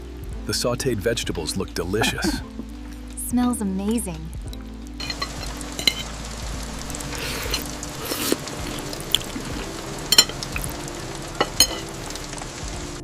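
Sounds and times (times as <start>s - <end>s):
food sizzling in a frying pan: 1.2s - 13.0s
utensil clinking against pan: 5.0s - 6.1s, 10.1s - 10.5s, 11.4s - 12.0s.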